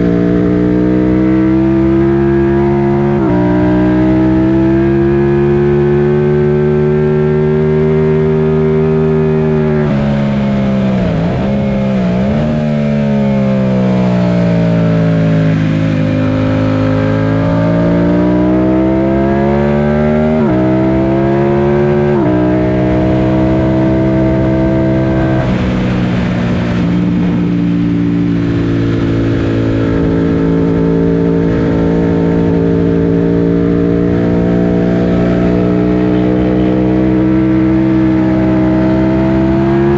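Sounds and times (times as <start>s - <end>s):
motorcycle engine revving: 0.0s - 39.9s
wind rushing: 22.3s - 33.2s.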